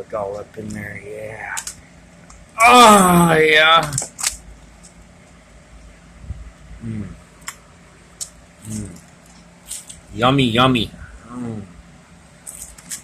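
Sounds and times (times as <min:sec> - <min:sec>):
low hum: 0:00.0 - 0:13.0
person murmuring mm: 0:06.7 - 0:07.3, 0:08.6 - 0:09.1, 0:11.0 - 0:11.8.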